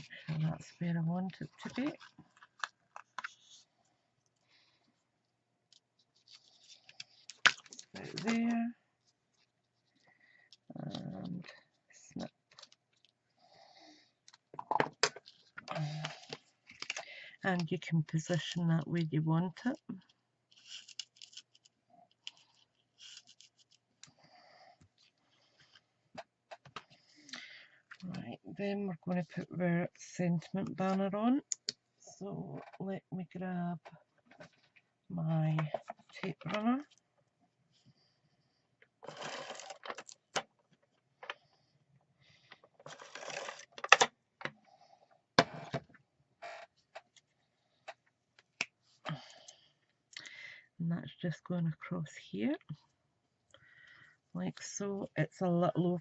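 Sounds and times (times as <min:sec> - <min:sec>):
paper and card rustling: 0:06.0 - 0:10.0.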